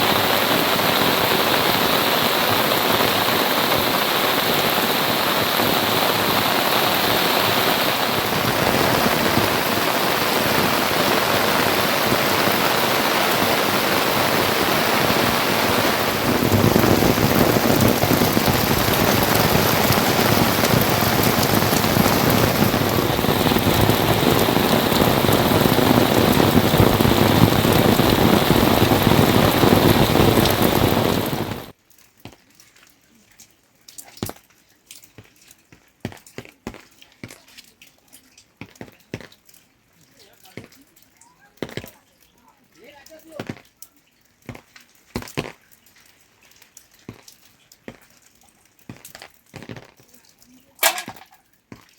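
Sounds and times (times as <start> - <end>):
heavy rain falling: 0.0 - 31.8, 49.6 - 51.4.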